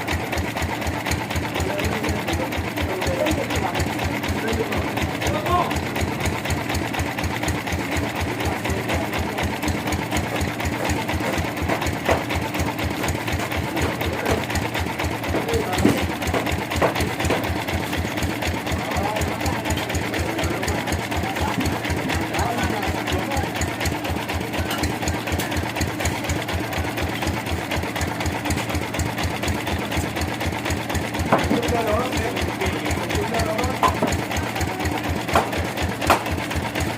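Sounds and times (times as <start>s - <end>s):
engine thumping rapidly: 0.0s - 36.9s
sawmill machinery running: 0.0s - 36.9s
low rhythmic thudding: 9.6s - 29.5s.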